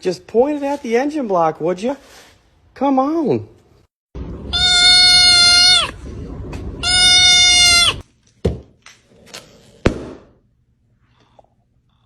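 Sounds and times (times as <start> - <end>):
goat bleating: 4.5 - 6.0, 6.8 - 8.0.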